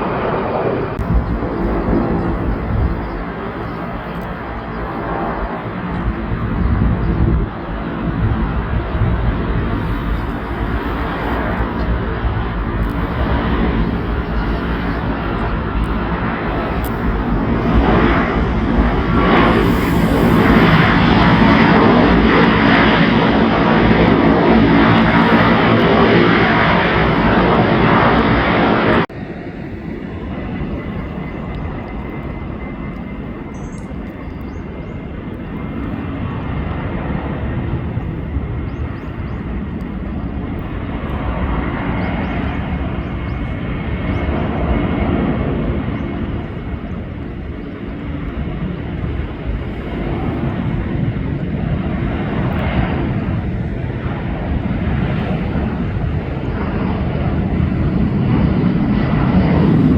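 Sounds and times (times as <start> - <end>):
jet engines rumbling: 0.0 - 59.9.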